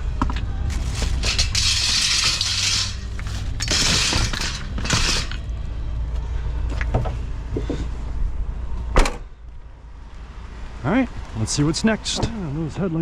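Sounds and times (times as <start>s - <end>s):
scrap metal scraping and rattling: 0.6s - 5.5s.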